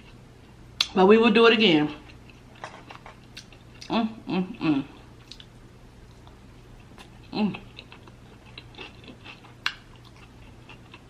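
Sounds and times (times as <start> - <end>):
close chewing and mouth clicks: 2.1 - 3.9, 5.2 - 5.5, 6.1 - 11.0.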